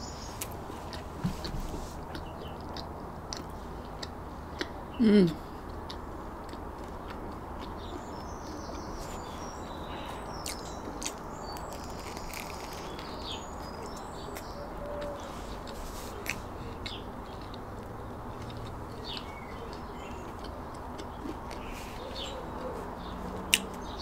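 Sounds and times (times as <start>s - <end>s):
small birds chirping: 0.0s - 24.0s
biting crusty bread: 10.4s - 22.8s.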